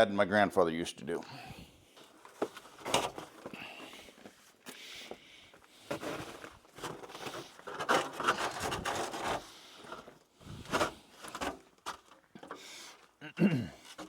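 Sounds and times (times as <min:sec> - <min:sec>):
rubbing and scraping: 0:05.8 - 0:13.1.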